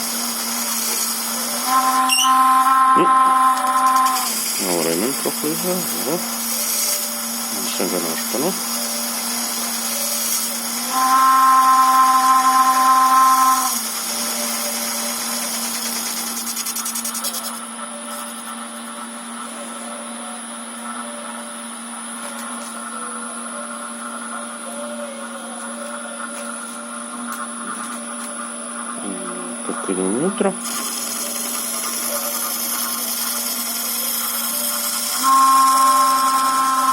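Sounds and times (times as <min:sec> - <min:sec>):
electric motor whine: 0:00.0 - 0:36.9
higher louder whine: 0:09.9 - 0:15.4.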